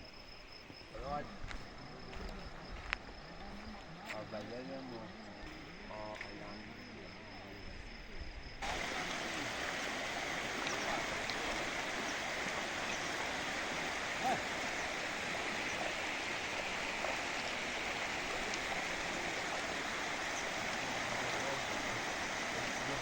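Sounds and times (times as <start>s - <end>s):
rushing flowing water: 8.6s - 23.0s.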